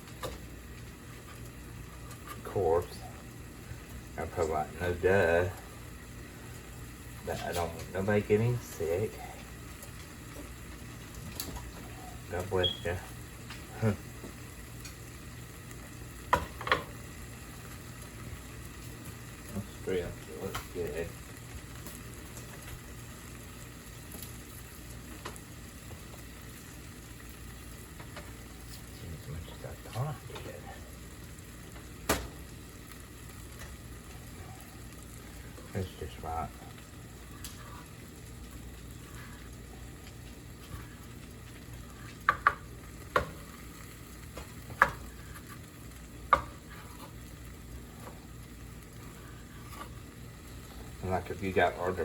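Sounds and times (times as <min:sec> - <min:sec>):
food sizzling in a pan: 0:00.0 - 0:52.0.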